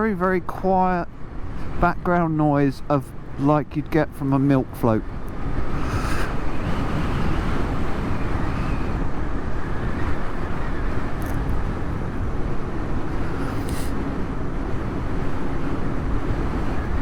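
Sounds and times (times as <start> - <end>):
wind rushing past helmet: 4.6 - 17.0
electric motorcycle hum: 5.0 - 17.0.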